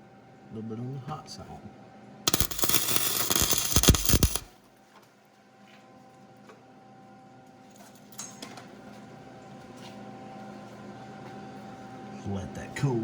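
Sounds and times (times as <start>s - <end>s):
welding arc crackling: 2.3s - 4.6s.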